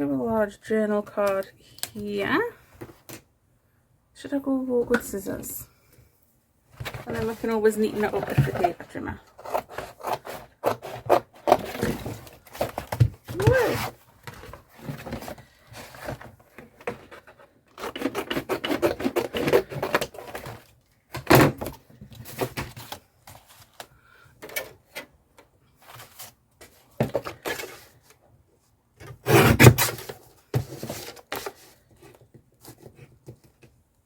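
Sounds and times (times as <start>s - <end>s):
cardboard rubbing and scraping: 6.8s - 20.7s, 29.1s - 33.4s.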